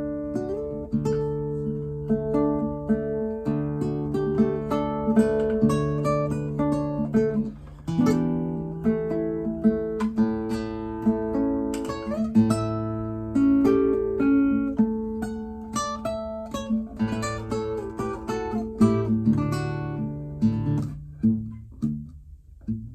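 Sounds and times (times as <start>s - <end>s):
classical guitar playing: 0.0s - 22.9s.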